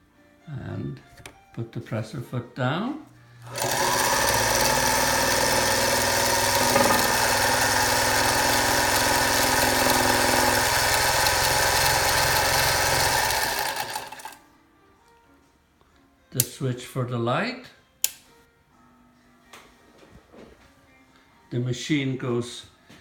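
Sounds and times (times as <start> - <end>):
sewing machine running: 3.4 - 14.4.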